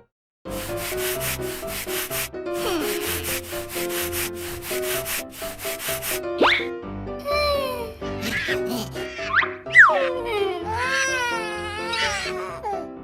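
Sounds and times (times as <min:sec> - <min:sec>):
rhythmic scraping: 0:00.5 - 0:06.3
simple cartoon melody: 0:00.5 - 0:08.0.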